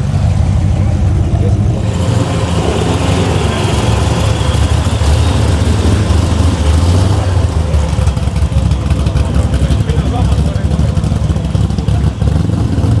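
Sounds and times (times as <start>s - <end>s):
faint voices: 0.0s - 12.9s
car engine running at low revs: 0.0s - 13.0s.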